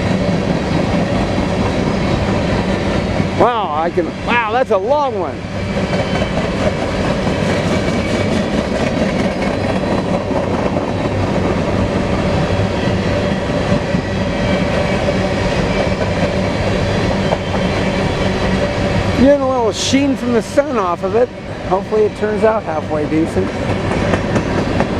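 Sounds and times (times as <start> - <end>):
rumble and rattle of train wheels: 0.0 - 24.9
faint steady wheel squeal: 5.4 - 6.8, 7.8 - 10.0, 14.0 - 19.0.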